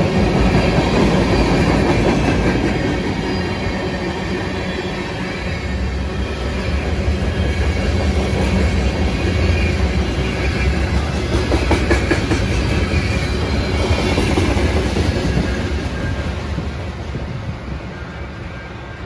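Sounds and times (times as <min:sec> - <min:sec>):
steel wheels rumbling on rail: 0:00.0 - 0:19.0
wheels clickety-clack over joints: 0:11.0 - 0:12.8.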